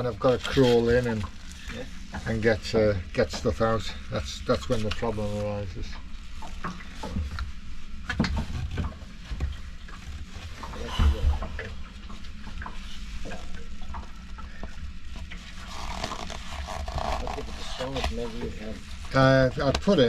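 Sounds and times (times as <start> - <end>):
low rumble: 9.6 - 16.0.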